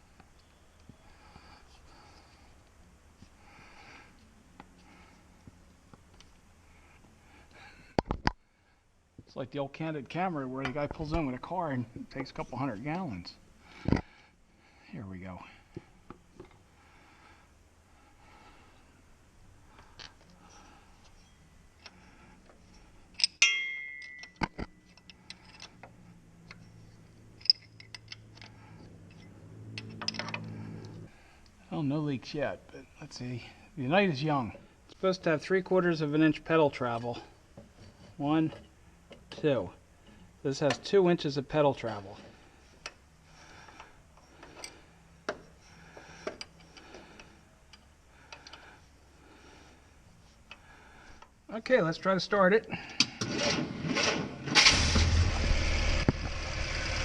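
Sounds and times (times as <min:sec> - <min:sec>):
metal clink ringing: 0:23.2 - 0:25.6.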